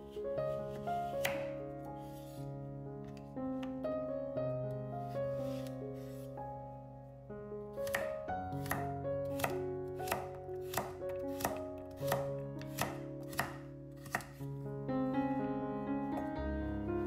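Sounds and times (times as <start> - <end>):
background music: 0.0 - 17.0
knife chopping on cutting board: 1.2 - 1.5, 7.8 - 14.4.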